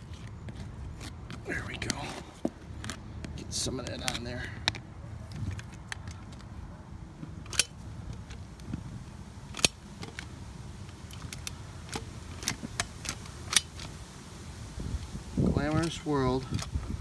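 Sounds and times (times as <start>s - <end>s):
caulking gun clicks: 7.4s - 8.4s, 9.5s - 10.3s.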